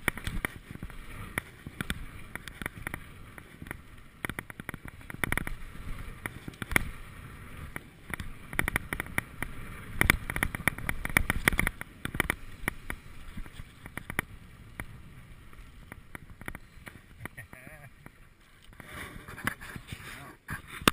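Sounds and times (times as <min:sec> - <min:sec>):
bike clicks and rattles: 0:00.0 - 0:20.9.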